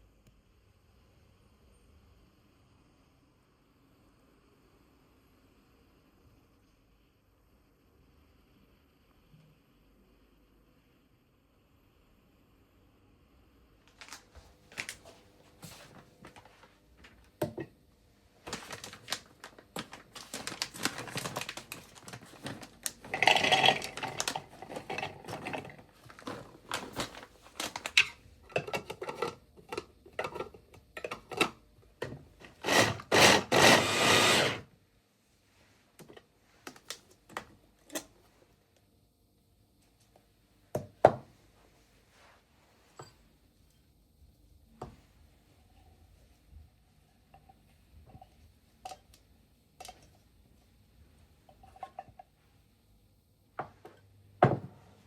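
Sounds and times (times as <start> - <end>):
utensils and dishes clattering: 20.2 - 31.6.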